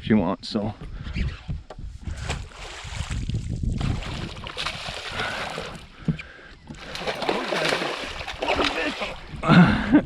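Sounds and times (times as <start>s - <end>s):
water splashing against boat: 2.1s - 9.4s.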